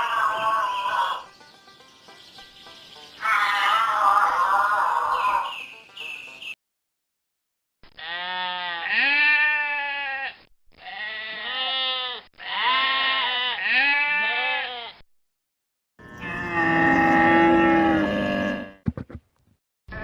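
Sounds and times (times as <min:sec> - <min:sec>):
long wavering bleats: 0:03.2 - 0:05.1, 0:08.0 - 0:15.0, 0:16.0 - 0:18.8.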